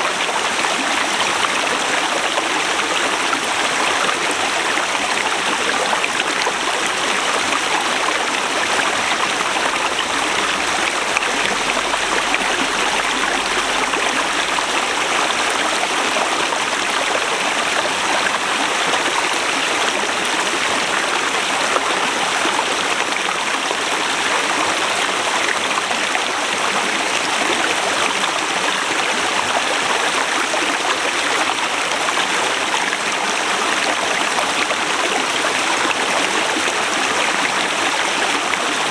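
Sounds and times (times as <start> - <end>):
river rushing over rocks: 0.0 - 21.6.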